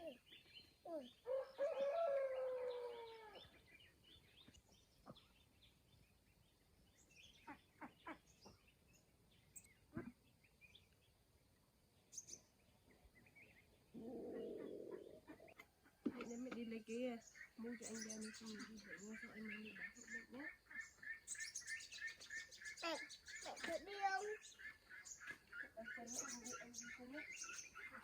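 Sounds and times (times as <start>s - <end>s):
faint bird chirps: 0.0s - 28.0s
rooster crowing: 1.3s - 3.4s.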